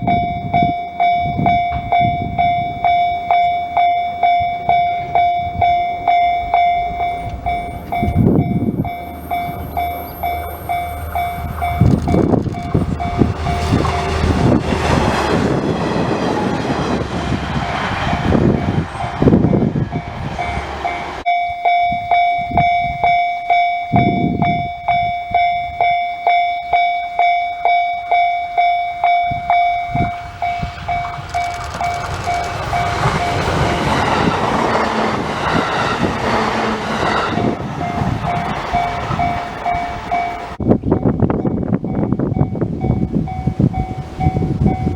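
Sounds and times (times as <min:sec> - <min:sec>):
level crossing bell ringing: 0:00.0 - 0:14.6, 0:37.0 - 0:40.6
train wheel and rail noise: 0:00.0 - 0:44.9.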